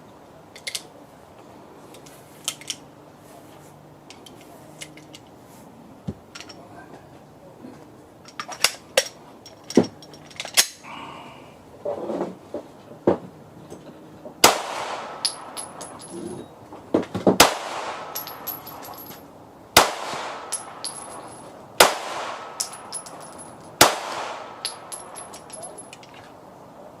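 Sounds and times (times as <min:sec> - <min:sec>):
pistol shots: 0:14.4 - 0:15.6, 0:17.4 - 0:18.8, 0:19.8 - 0:21.0, 0:21.8 - 0:22.9, 0:23.8 - 0:25.0
brass casings tinkling: 0:15.0 - 0:16.4, 0:17.8 - 0:19.3, 0:20.3 - 0:26.2.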